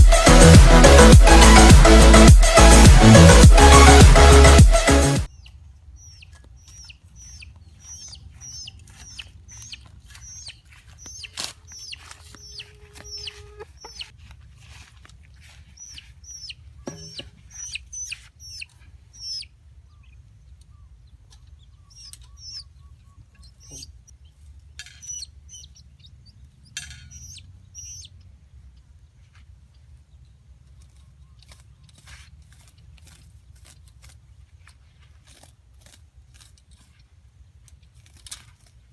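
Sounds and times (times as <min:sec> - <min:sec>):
loud electronic music: 0:00.0 - 0:05.3
chicken calling: 0:05.3 - 0:14.2, 0:15.6 - 0:20.1, 0:21.6 - 0:24.0, 0:27.1 - 0:28.1.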